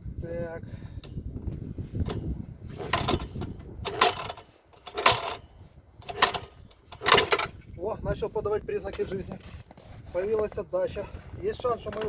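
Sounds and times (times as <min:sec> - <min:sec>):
engine pull-start rasping: 0:02.0 - 0:07.6.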